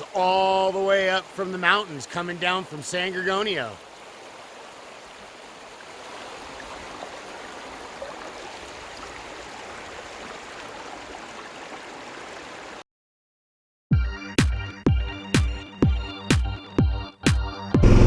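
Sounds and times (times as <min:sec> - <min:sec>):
water rushing over rocks: 0:00.0 - 0:12.8.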